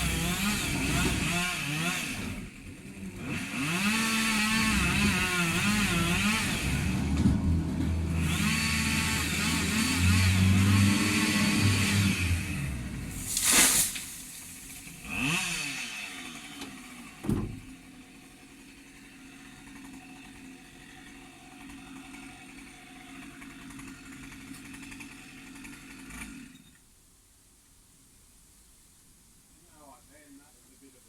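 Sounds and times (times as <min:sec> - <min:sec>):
chainsaw engine revving: 0:00.0 - 0:26.6
sharp thud: 0:13.2 - 0:14.5.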